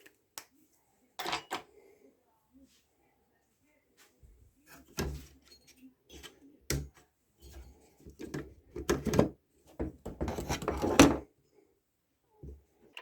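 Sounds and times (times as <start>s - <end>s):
hard objects knocking and clattering: 7.5s - 11.2s.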